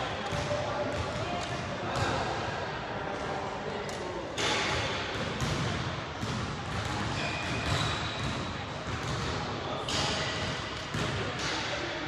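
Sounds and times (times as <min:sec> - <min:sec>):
basketball bouncing on court: 0:00.3 - 0:02.2, 0:05.2 - 0:11.6.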